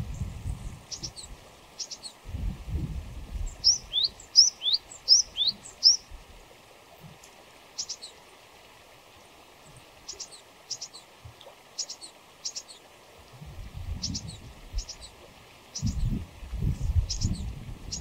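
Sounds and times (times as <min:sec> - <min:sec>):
songbird singing two-note phrase: 0:03.6 - 0:06.0.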